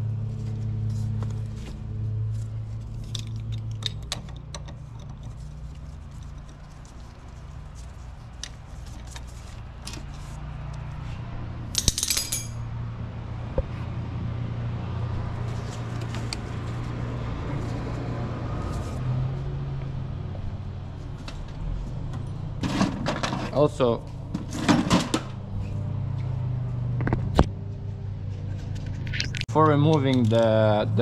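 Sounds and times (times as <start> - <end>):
metal tools clinking on car parts: 11.7 - 12.8
metallic rattle: 11.7 - 12.8.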